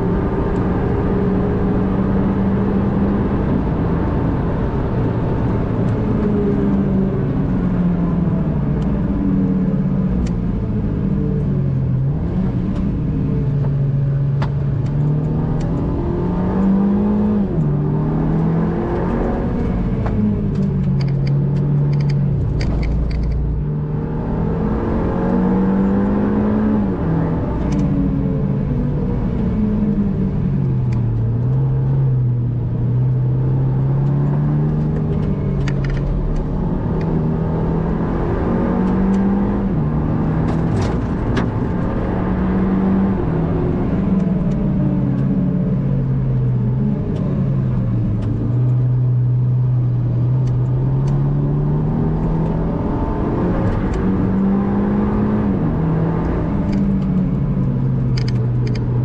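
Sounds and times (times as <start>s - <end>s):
car engine accelerating through gears: 0.0s - 59.0s.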